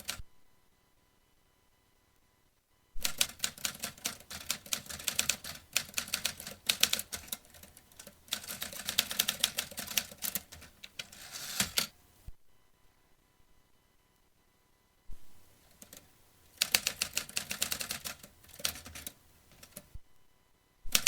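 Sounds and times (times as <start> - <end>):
typewriter key strikes: 3.0 - 11.9, 16.6 - 19.9.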